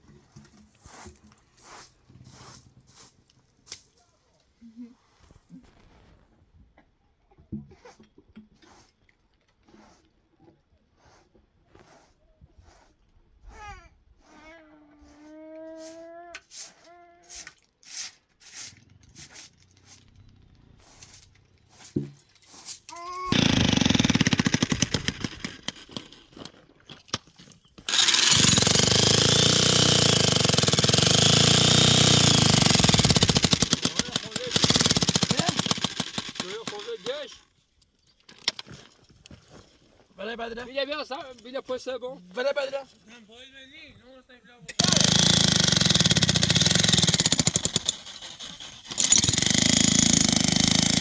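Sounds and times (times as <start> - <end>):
small engine running: 23.3 - 26.1, 27.9 - 37.4, 44.8 - 51.0.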